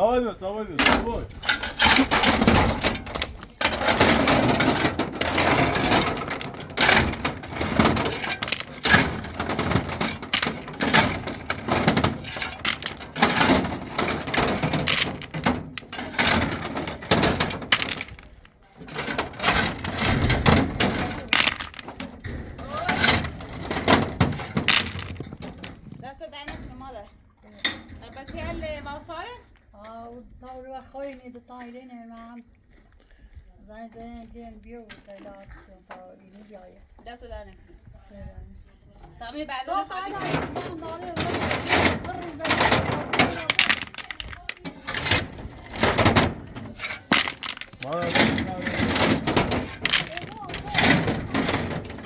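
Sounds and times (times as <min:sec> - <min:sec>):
hard objects clattering: 0:00.7 - 0:26.1, 0:39.7 - 0:52.0.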